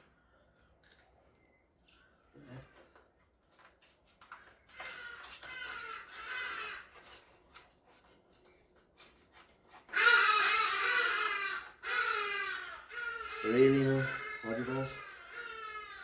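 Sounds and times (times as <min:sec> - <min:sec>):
high wavering wailing cries: 0:09.9 - 0:16.0.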